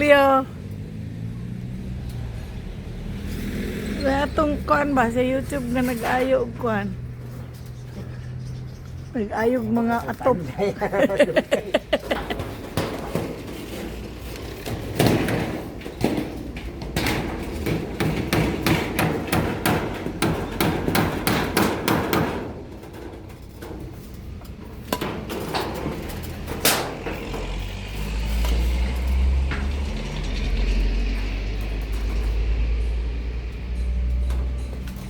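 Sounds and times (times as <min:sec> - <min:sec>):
hammer blows on roofing: 0:14.6 - 0:23.2.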